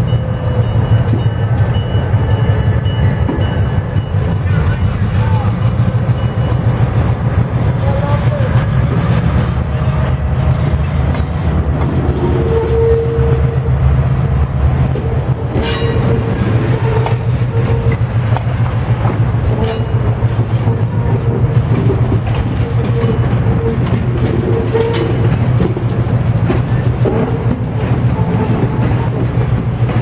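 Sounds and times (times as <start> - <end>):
train cars rumbling past: 0.0 - 30.0
wheels clicking over rail joints: 14.8 - 30.0.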